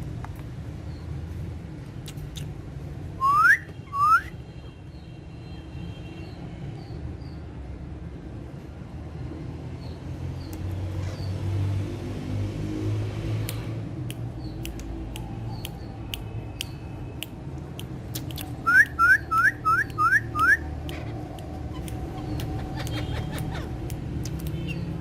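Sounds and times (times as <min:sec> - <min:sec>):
parakeet shrill whistling calls: 0:03.2 - 0:04.4, 0:18.6 - 0:23.7
sharp clicks: 0:13.4 - 0:19.0, 0:19.8 - 0:23.1, 0:23.8 - 0:24.8.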